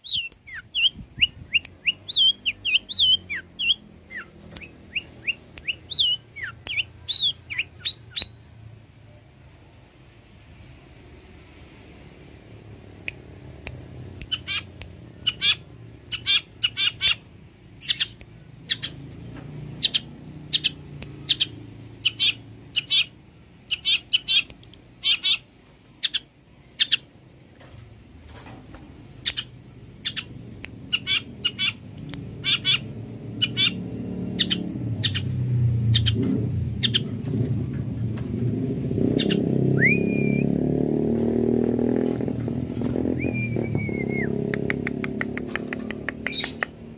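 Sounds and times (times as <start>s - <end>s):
bird harsh calls: 14.3s - 19.0s, 19.8s - 27.1s, 30.9s - 31.8s, 32.4s - 33.8s, 34.4s - 35.3s, 36.8s - 37.2s, 39.1s - 40.1s.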